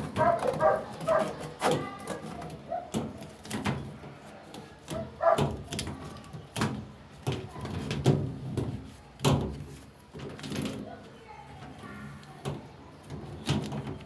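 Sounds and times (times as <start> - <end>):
dog barking: 0.2 - 1.4, 5.0 - 5.6.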